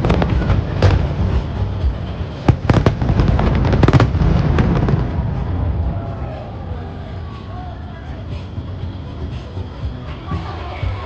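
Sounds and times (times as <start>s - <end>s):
fireworks bangs: 0.0s - 6.3s
low rumble: 0.0s - 10.0s.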